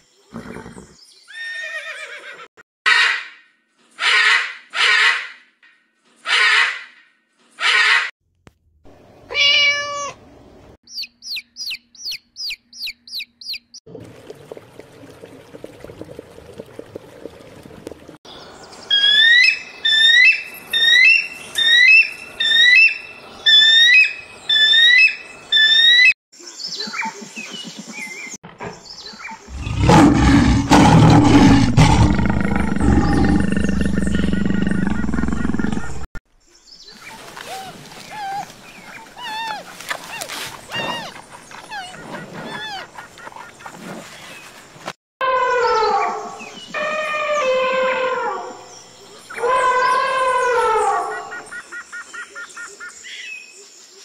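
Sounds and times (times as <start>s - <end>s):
deep rough animal call: 29.5s - 36.1s
loud rising animal calls: 29.5s - 36.1s.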